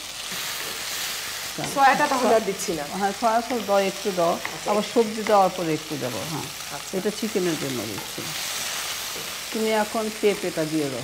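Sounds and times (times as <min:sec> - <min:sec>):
chicken sizzling in hot oil: 0:00.0 - 0:11.0
woman talking: 0:01.6 - 0:08.0, 0:09.5 - 0:11.0.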